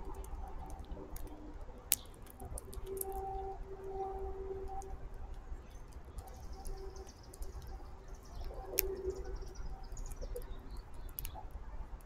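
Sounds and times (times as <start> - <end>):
faint birdsong: 2.9 - 12.0.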